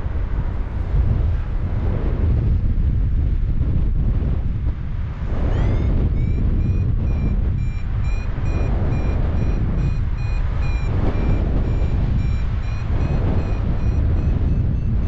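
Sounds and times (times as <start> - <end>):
wind rumble on microphone: 0.0 - 15.0
variometer short high beeps: 5.4 - 15.0.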